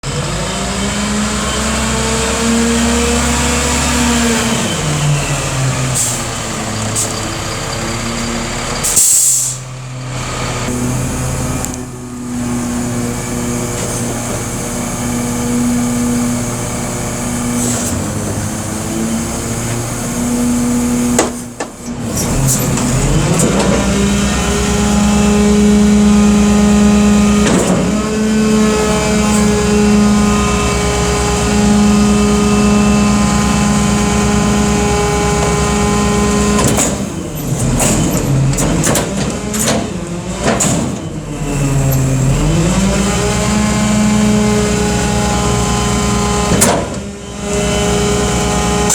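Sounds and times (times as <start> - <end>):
truck diesel engine revving: 0.0 - 48.9.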